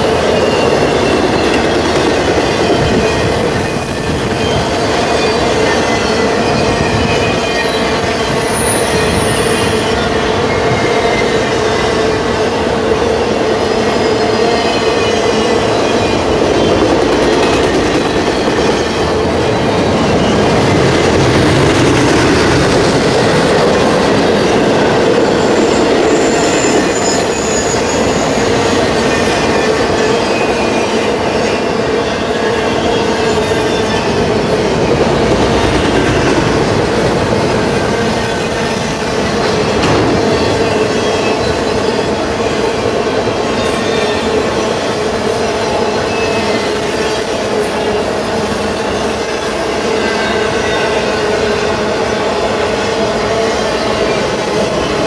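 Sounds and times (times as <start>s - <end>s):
freight train wheels rushing: 0.0s - 55.0s
whining wheel squeal: 0.1s - 12.2s, 13.7s - 42.8s.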